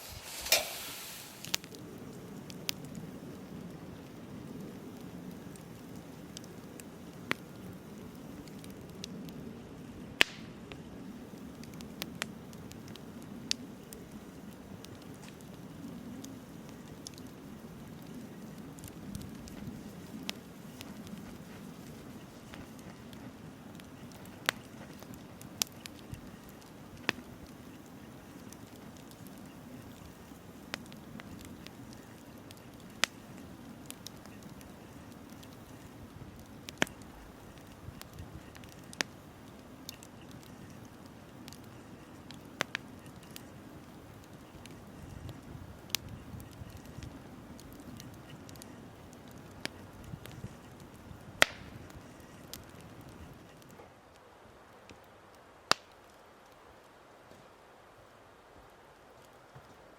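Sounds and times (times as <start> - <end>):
bonfire flame rushing: 0.0 - 59.9
fire crackling and popping: 0.0 - 59.9
loud sharp pops: 10.2 - 10.5, 51.4 - 51.8, 55.7 - 55.9.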